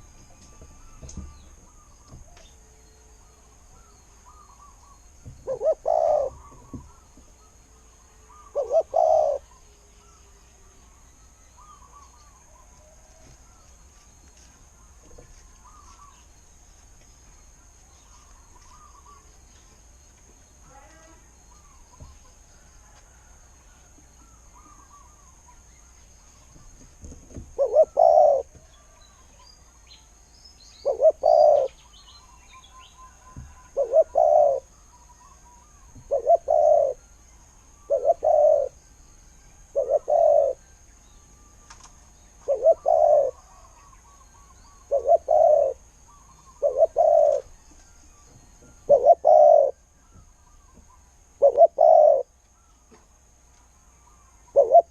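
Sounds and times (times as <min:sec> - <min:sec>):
dove cooing: 0:03.8 - 0:07.1, 0:08.2 - 0:09.6, 0:27.5 - 0:28.6, 0:30.8 - 0:31.8, 0:33.1 - 0:34.7, 0:35.7 - 0:37.0, 0:37.8 - 0:38.8, 0:39.7 - 0:40.6, 0:42.4 - 0:47.5, 0:48.8 - 0:52.3, 0:54.5 - 0:54.9.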